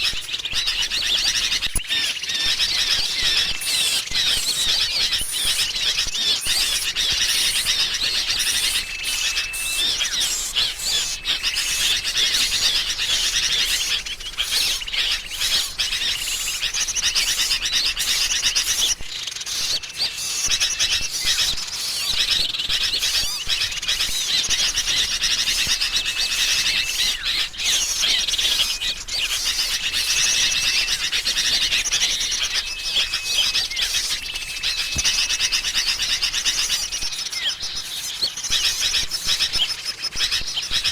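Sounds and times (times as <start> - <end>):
bulbuls chirping: 0.0 - 40.9
small songbirds calling: 0.0 - 40.9
thin held whistle: 8.3 - 11.6.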